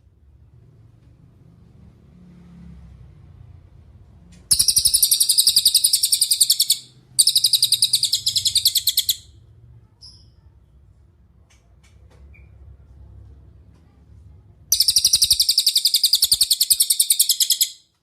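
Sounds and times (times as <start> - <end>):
songbird rattling trill: 4.5 - 9.3, 14.7 - 17.8.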